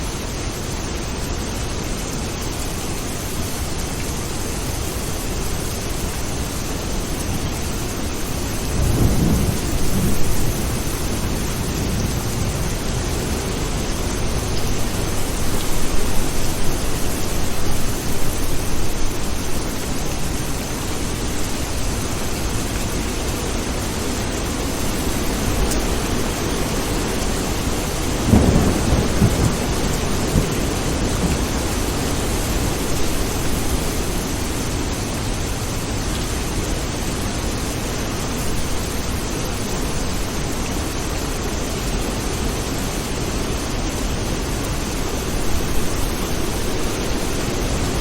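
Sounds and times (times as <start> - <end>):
steady rain: 0.0 - 48.0
rolling thunder: 8.6 - 19.0, 26.0 - 34.0.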